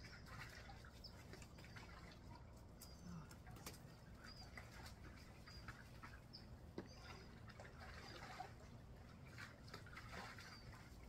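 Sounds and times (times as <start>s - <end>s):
faint bird chirps: 2.8s - 7.4s.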